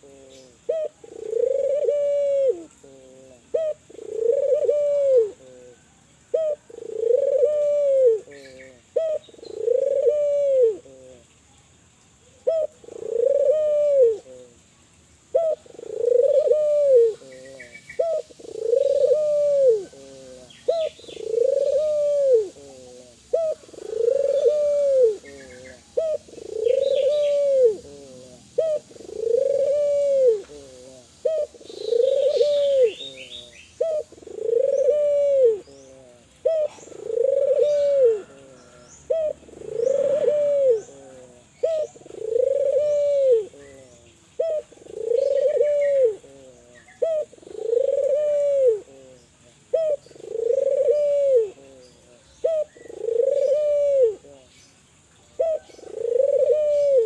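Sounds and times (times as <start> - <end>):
dove cooing: 0.0 - 11.4, 12.4 - 14.7, 15.3 - 57.0
small birds chirping: 0.0 - 57.0.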